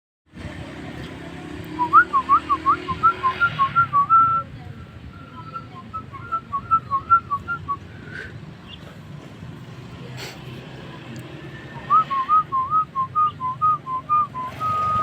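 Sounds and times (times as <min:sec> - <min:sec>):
starling whistling: 0:01.8 - 0:08.8, 0:11.8 - 0:15.0.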